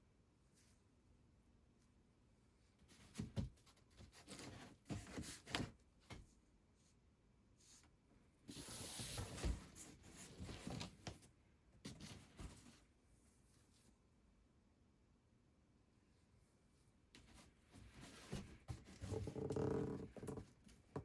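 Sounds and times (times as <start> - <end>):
rubbing and rustling handling noises: 2.6 - 14.1, 16.8 - 21.0.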